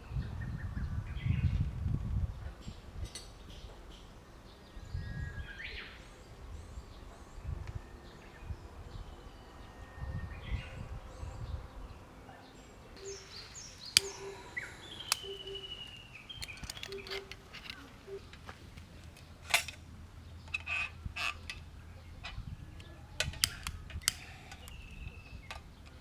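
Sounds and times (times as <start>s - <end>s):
outdoor ambience: 0.0s - 26.0s
birds chirping: 3.0s - 26.0s
sharp clicks: 13.0s - 19.8s, 22.8s - 25.7s.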